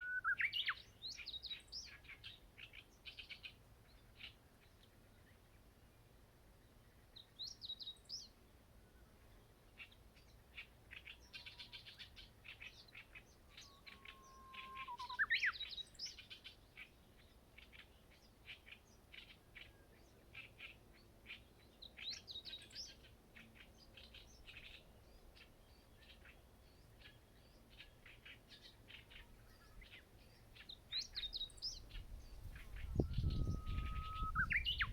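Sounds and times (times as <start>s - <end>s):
long bird whistle with flourish: 0.0s - 0.7s, 13.6s - 15.7s, 32.6s - 34.9s
songbirds chirping: 0.0s - 34.9s.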